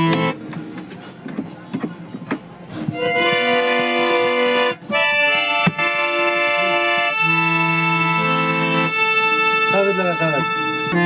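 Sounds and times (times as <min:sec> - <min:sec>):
harmonium chords: 0:00.0 - 0:00.6, 0:02.8 - 0:11.0.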